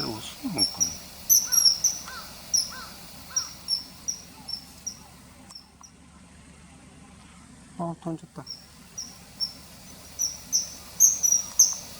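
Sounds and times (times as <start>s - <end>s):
kingfisher shrill calls: 0.0s - 5.2s, 8.5s - 11.9s
lower whistled notes: 8.5s - 11.9s.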